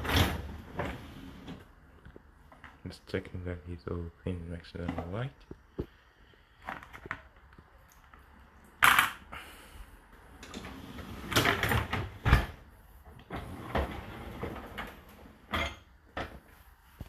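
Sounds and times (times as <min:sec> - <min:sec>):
dishwasher racks rattling: 0:10.4 - 0:12.5.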